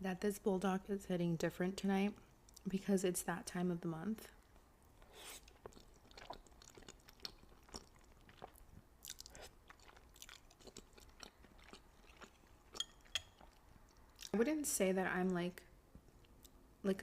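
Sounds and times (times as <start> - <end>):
wet mouth chewing clicks: 5.2 - 14.4.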